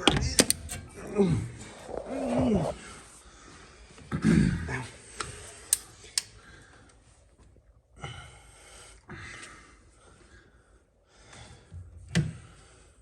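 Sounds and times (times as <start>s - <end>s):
sharp metallic clicks: 0.3s - 0.9s
breathy sounds: 0.6s - 6.9s.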